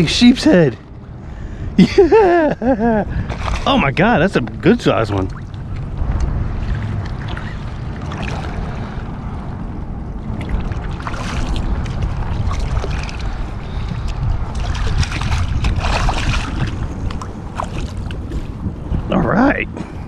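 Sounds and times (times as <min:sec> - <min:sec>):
wind rumbling on microphone: 0:00.0 - 0:20.0
water splashing: 0:03.1 - 0:09.6, 0:10.2 - 0:18.6.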